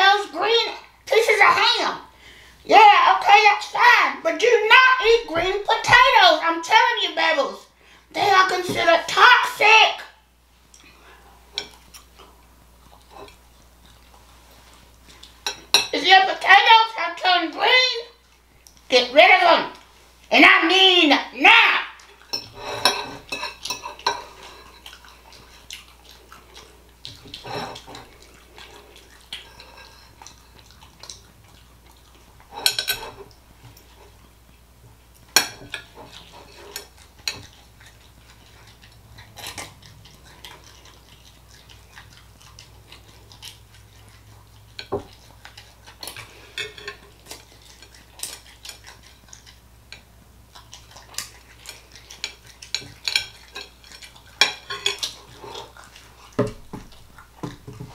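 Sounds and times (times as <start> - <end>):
cutlery clinking on plate: 22.3 - 24.7, 32.6 - 33.2.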